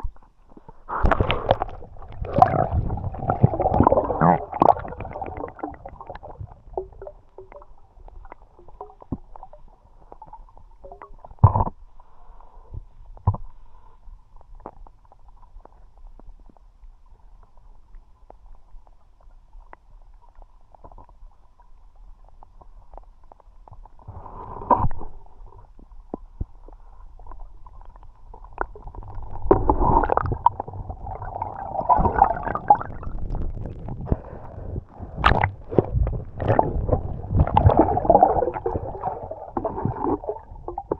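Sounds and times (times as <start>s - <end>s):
underwater clicks and ticks: 0.0s - 40.9s
water gurgling and bubbling: 0.9s - 11.8s, 28.4s - 40.9s.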